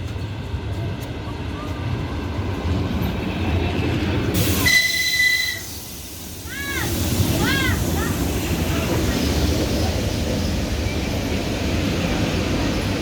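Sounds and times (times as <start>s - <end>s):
train rolling rumble: 0.0s - 13.0s
train hiss: 4.3s - 13.0s
high-pitched train squeal: 4.4s - 6.1s.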